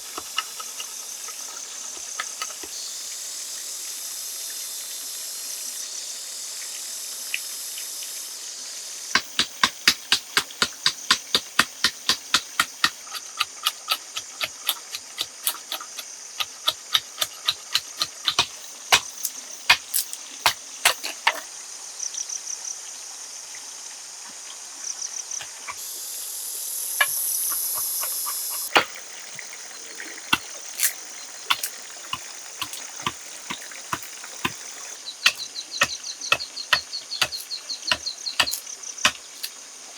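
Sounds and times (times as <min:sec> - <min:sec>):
insects buzzing: 0:00.0 - 0:39.9
sharp knocks: 0:09.2 - 0:15.4, 0:30.3 - 0:34.7, 0:35.3 - 0:39.2.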